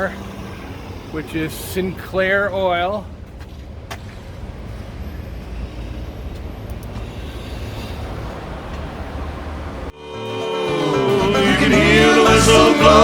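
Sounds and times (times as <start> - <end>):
low uneven street rumble: 0.0 - 9.9.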